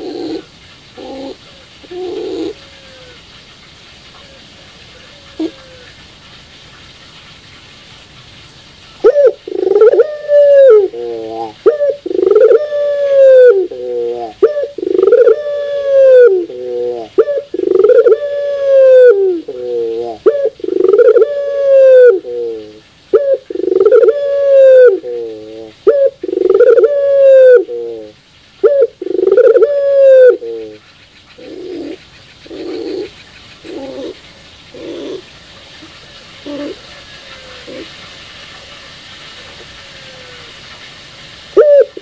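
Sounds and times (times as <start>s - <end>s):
dove cooing: 0.0s - 6.0s, 9.0s - 40.7s, 41.5s - 42.0s.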